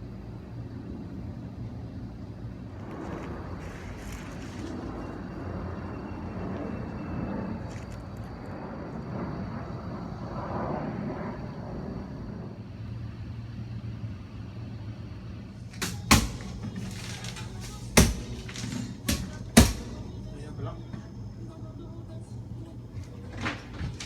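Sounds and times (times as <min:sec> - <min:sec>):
loud sharp knocks: 0:15.7 - 0:20.4.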